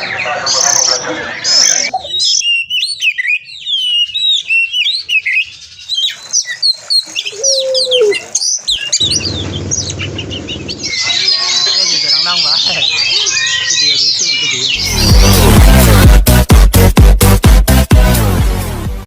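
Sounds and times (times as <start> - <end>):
bird singing whistled notes: 1.6 - 15.0.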